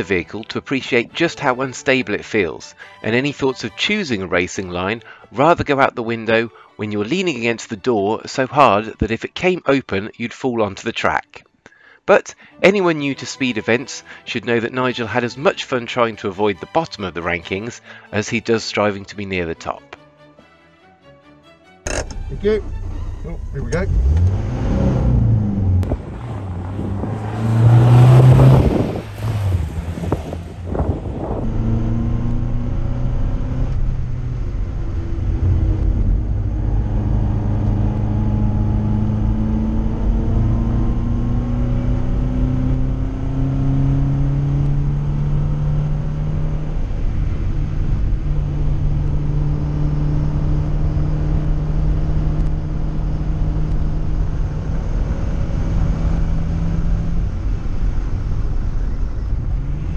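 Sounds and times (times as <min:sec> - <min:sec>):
car engine accelerating: 0:21.9 - 0:59.9
gear change: 0:21.9 - 0:59.9.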